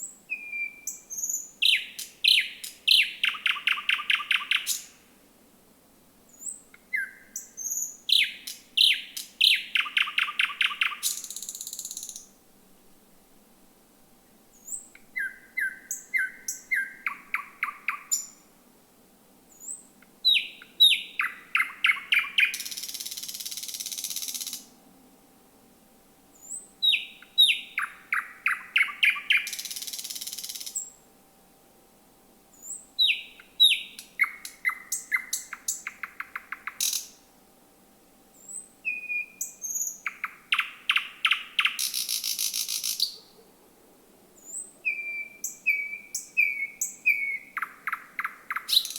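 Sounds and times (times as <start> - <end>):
thrush nightingale singing: 0.0 - 5.0, 6.3 - 12.4, 14.5 - 18.5, 19.5 - 24.8, 26.3 - 31.0, 32.5 - 37.3, 38.3 - 43.4, 44.4 - 48.9.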